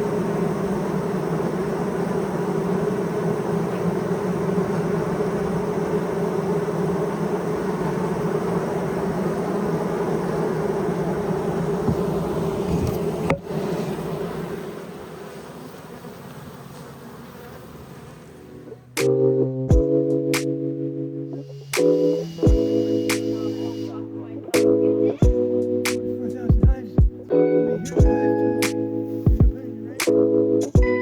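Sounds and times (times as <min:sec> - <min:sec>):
bees buzzing in hive: 0:00.0 - 0:31.0.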